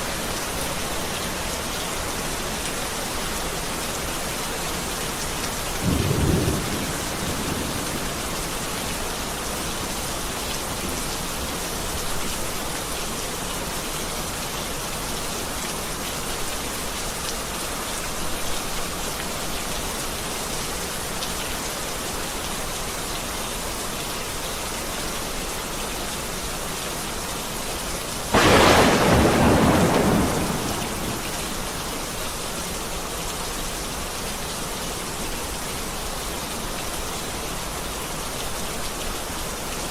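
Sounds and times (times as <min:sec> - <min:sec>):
heavy rain: 0:00.0 - 0:39.9
loud thunderclap: 0:05.8 - 0:08.5, 0:28.4 - 0:31.8
thunder rumbling: 0:05.8 - 0:08.9, 0:28.4 - 0:32.1.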